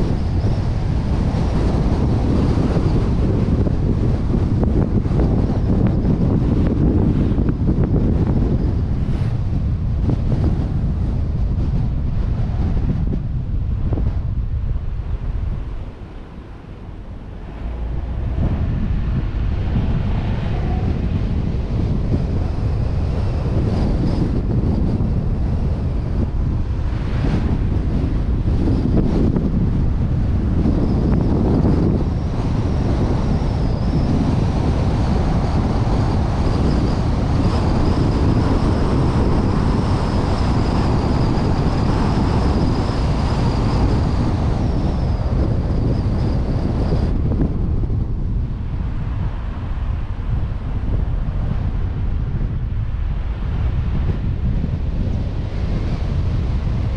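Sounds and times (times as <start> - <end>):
road noise: 0.0 - 56.9
wind rushing over microphone: 0.0 - 56.9
vehicle engine: 13.6 - 24.2
faint high whine: 13.8 - 47.9.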